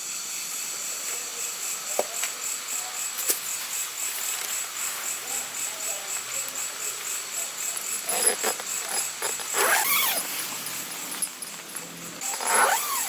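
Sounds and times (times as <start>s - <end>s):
crickets chirring: 0.0s - 13.0s
zipper rasping: 7.8s - 13.0s.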